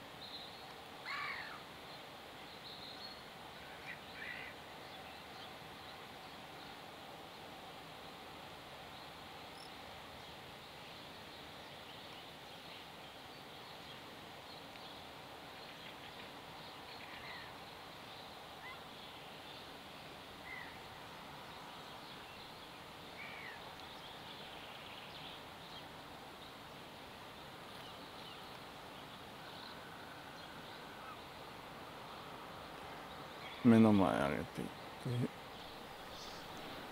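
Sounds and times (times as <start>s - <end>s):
steady hiss: 0.0s - 36.9s
bird calls: 20.4s - 20.8s, 21.6s - 25.9s, 27.7s - 31.5s, 32.1s - 36.9s.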